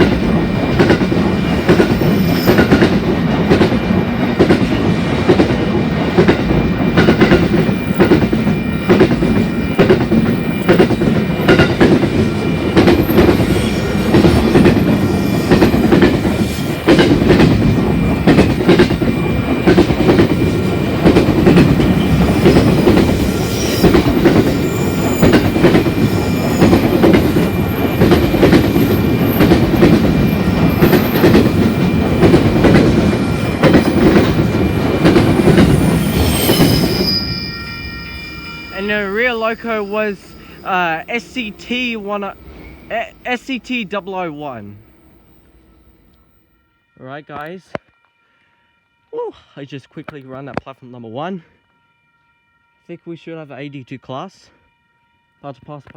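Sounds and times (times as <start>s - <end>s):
wheels clicking over rail joints: 0.0s - 36.7s
freight train wagons rumbling: 0.0s - 46.4s.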